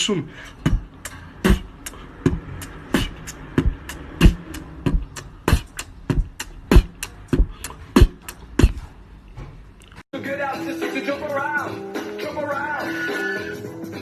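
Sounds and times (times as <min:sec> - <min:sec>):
percussive dance beat: 0:00.6 - 0:08.8.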